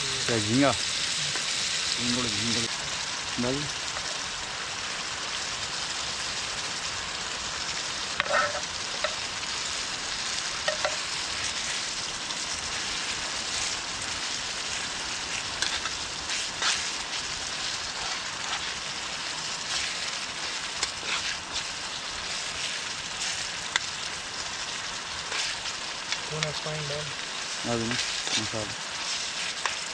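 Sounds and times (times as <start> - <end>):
food sizzling in a pan: 0.0 - 29.9
spoon scraping a pan: 8.2 - 9.2, 10.6 - 11.1, 15.6 - 16.9, 19.7 - 22.4.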